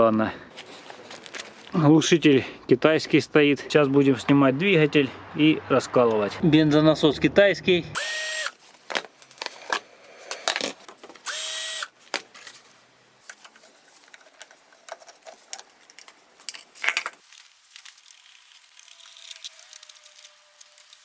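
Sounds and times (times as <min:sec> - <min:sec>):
cordless drill whirring: 0:08.0 - 0:12.2
tools and metal parts clinking: 0:13.3 - 0:21.0.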